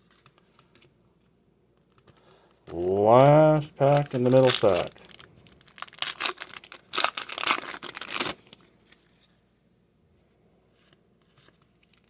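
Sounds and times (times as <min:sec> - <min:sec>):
wrapper tearing and crinkling: 0:02.7 - 0:09.1.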